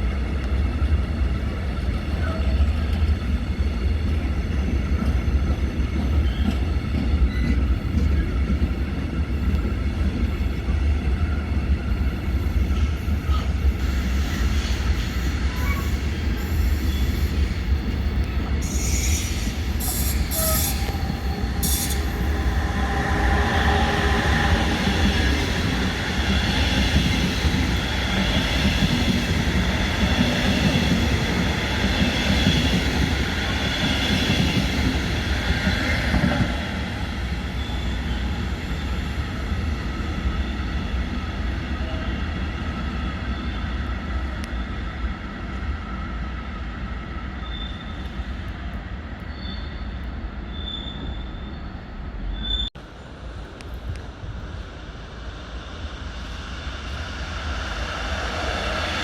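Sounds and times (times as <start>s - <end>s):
train rumbling on tracks: 0.0s - 59.0s
train wheel squeal: 6.0s - 8.7s, 12.3s - 29.2s, 37.4s - 41.0s, 47.3s - 48.4s, 49.2s - 52.8s.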